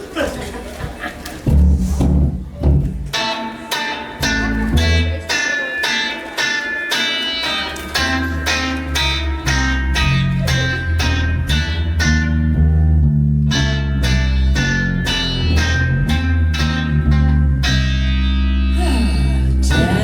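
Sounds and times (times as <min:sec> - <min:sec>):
bass line: 0:01.5 - 0:03.3, 0:04.2 - 0:05.4, 0:07.9 - 0:20.0
electric guitar chords: 0:03.1 - 0:20.0.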